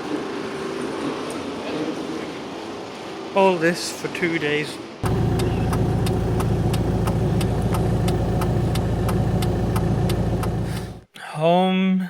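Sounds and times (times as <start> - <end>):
car engine running: 5.0 - 11.0
sharp regular ticking: 5.0 - 11.0.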